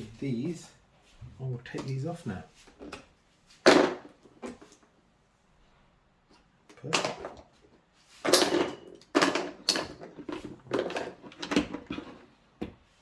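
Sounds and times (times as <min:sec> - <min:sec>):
parts clattering and scraping: 0:06.3 - 0:12.4.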